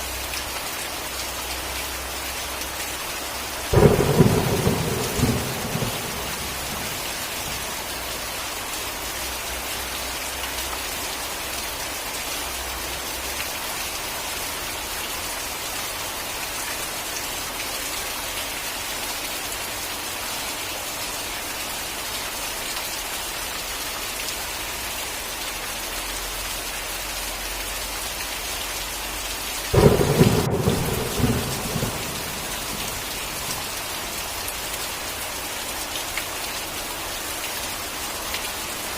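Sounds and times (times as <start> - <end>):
steady rain falling: 0.0 - 38.9
thunder rumbling: 3.7 - 7.8, 29.7 - 34.2.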